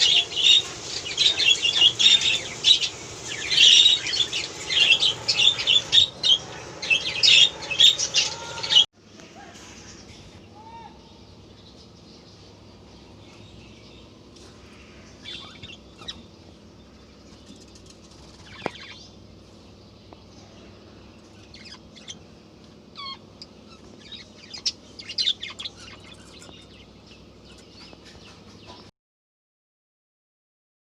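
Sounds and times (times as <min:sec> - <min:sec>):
budgerigars chirping and squawking: 0:00.0 - 0:08.9, 0:13.2 - 0:19.6, 0:20.2 - 0:28.9
loud falling bird call: 0:00.0 - 0:08.9.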